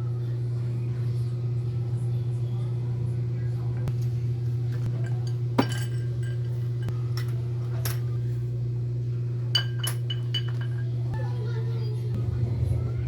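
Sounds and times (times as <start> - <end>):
steady low hum: 0.0 - 13.0
metal tools clinking: 4.7 - 8.0, 9.6 - 10.9.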